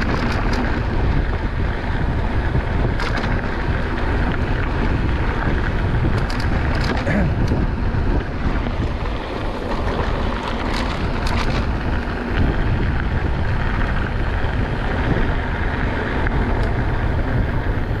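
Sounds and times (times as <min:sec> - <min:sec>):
mountain bike rumbling over trail: 0:00.0 - 0:18.0
wind buffeting microphone: 0:00.0 - 0:18.0
sharp rattling clicks: 0:06.1 - 0:07.6.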